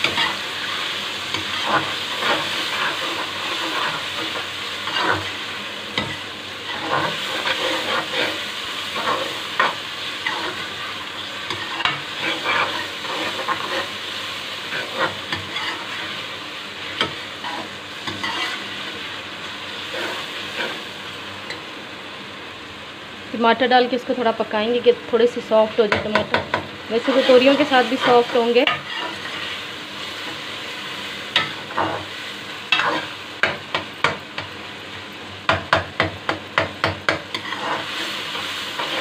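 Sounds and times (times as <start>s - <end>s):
metal spoon scraping a pan: 0.0s - 16.2s, 16.9s - 19.1s, 19.8s - 20.9s, 27.0s - 29.7s, 32.7s - 34.2s, 37.1s - 39.0s
vegetables sizzling in a wok: 0.0s - 39.0s.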